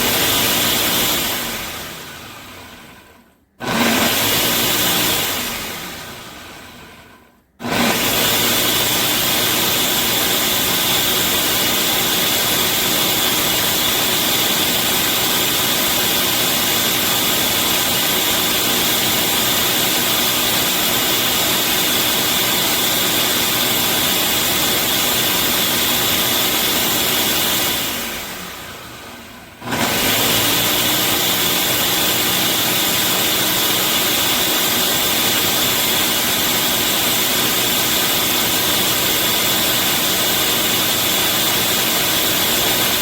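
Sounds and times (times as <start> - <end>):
blender running: 0.0 - 43.0.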